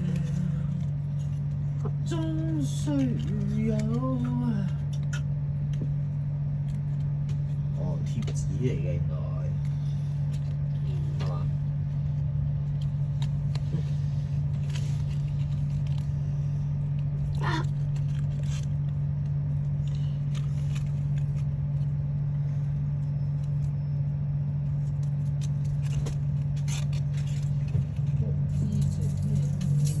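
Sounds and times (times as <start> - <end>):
paper handling clicks and scrapes: 0.0 - 8.9, 9.6 - 23.8, 24.6 - 29.5
steady low hum: 0.0 - 30.0.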